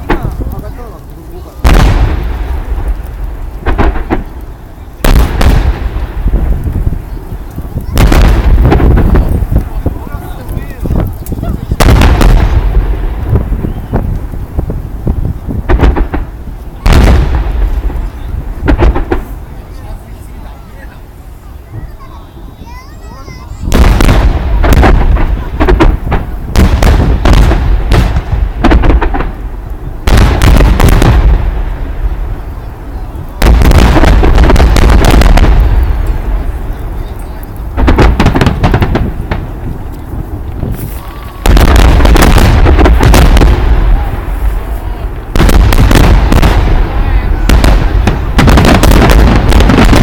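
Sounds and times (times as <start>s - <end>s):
fireworks booming: 0.0s - 50.0s
fireworks crackling: 0.0s - 50.0s.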